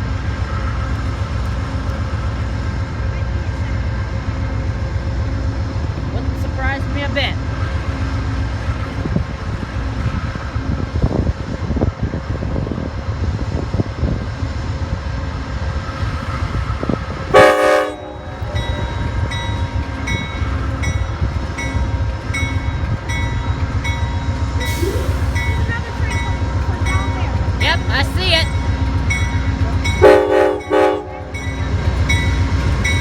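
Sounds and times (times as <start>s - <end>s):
diesel locomotive idling: 0.0s - 33.0s
locomotive horn blast: 17.3s - 18.8s, 30.0s - 31.4s
locomotive bell ringing: 17.4s - 33.0s.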